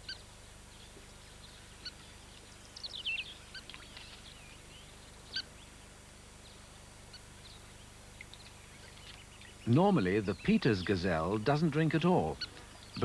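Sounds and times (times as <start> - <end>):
faint steady hum: 0.0 - 13.0
birds calling: 8.2 - 13.0.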